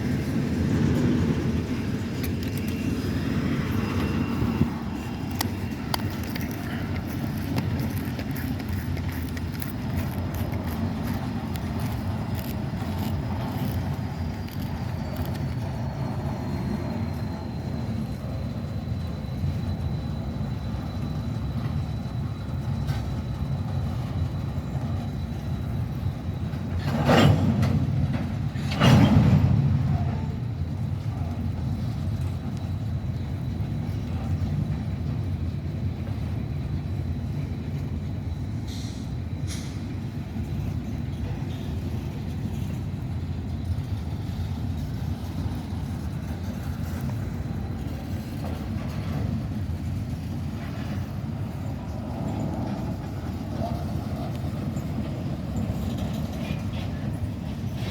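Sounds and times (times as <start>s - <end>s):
faint high whine: 0.0s - 28.8s
freight train wheels on rail: 0.0s - 57.9s.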